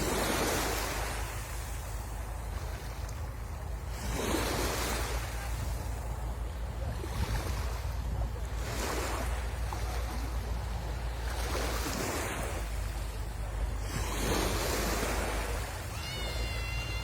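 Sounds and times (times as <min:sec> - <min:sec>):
wind rumble on microphone: 0:00.0 - 0:16.0
sea waves breaking on shore: 0:00.0 - 0:17.0
high wavering whistle-like call: 0:15.9 - 0:17.0.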